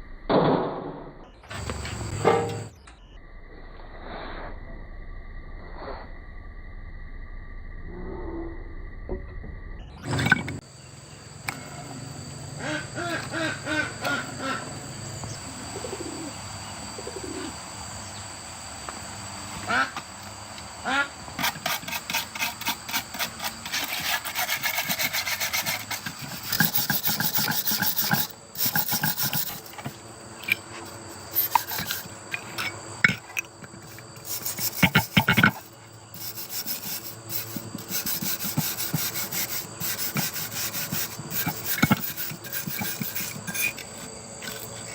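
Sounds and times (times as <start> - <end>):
file rasping on metal: 21.4 - 32.1, 33.8 - 44.7.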